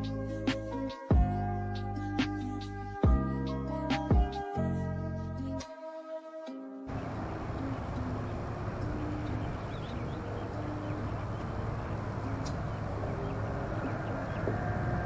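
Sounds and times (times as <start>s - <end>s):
faint bird chirps: 6.9s - 15.0s
low outdoor rumble: 6.9s - 15.0s.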